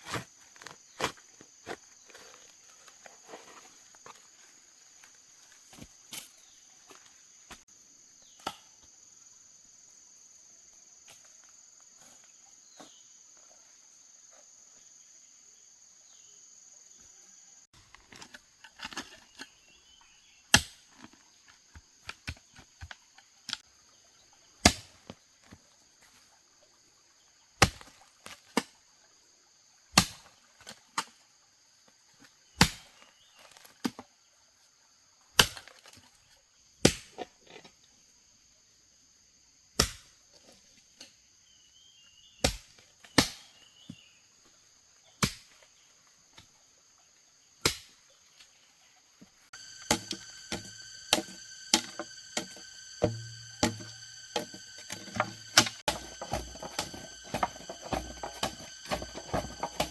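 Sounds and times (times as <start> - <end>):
insects humming: 0.0 - 59.9
wood being chopped: 20.5 - 20.8, 24.6 - 25.0, 27.6 - 27.9, 30.0 - 30.3, 32.6 - 33.1, 35.4 - 35.8, 36.8 - 37.2, 39.8 - 40.1, 42.4 - 43.5, 45.2 - 45.6, 47.6 - 47.9, 49.7 - 59.9.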